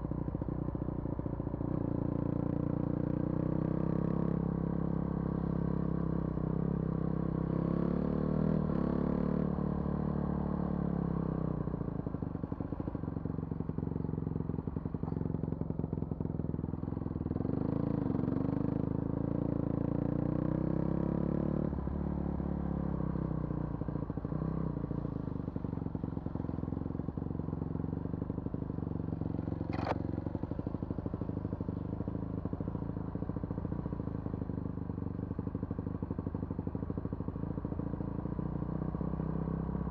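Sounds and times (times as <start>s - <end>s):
vehicle engine driving: 28.2s - 37.7s.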